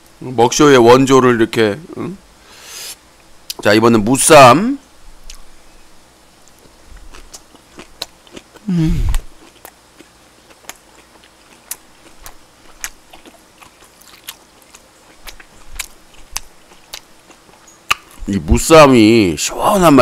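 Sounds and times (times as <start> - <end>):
person chewing crunchy food: 6.4 - 18.3
person humming: 8.6 - 9.3.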